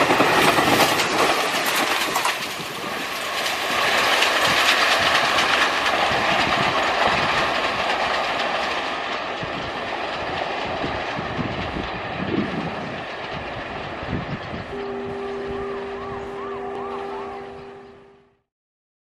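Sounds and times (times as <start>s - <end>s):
wheels clattering over rail joints: 0.0s - 18.1s
train coaches rumbling: 0.0s - 18.5s
two-tone train horn: 14.7s - 18.4s.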